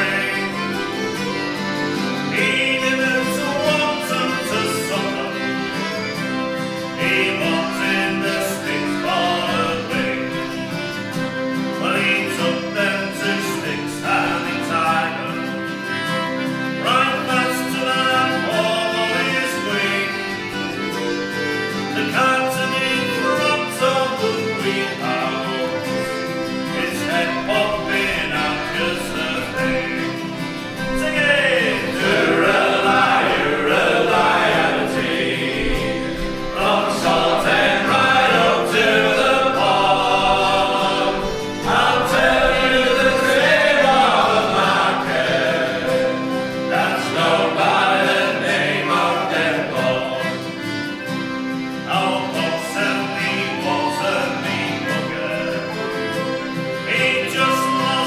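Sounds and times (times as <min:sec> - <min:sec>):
group singing a sea shanty: 0:00.0 - 0:01.2, 0:02.0 - 0:05.7, 0:06.4 - 0:10.9, 0:16.8 - 0:20.5, 0:21.9 - 0:51.0, 0:51.8 - 0:58.0
instrumental accompaniment: 0:00.0 - 0:58.0.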